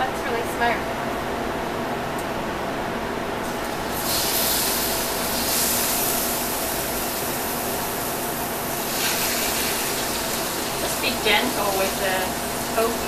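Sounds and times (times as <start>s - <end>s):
tofu sizzling in hot oil: 3.8s - 13.0s.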